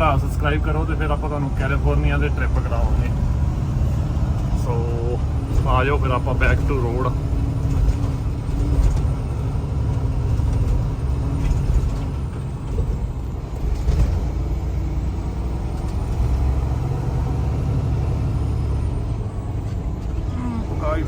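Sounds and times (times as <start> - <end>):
road noise: 0.0 - 21.0
truck diesel engine rumble: 0.0 - 21.0.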